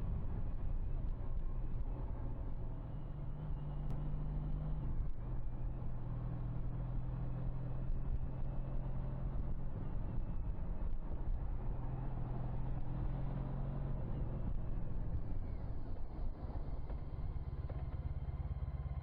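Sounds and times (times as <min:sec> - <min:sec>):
three-wheeler engine running: 0:11.6 - 0:19.0.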